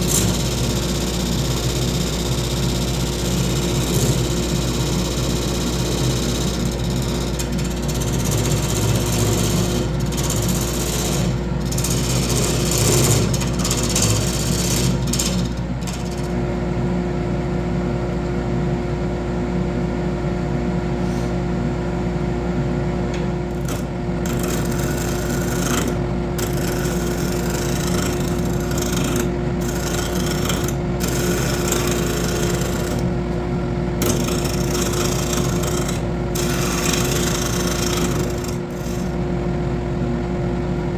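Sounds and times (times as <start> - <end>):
tool cutting spinning wood: 0.0 - 16.4, 23.5 - 39.2
lathe motor hum: 0.0 - 16.5, 23.2 - 39.6.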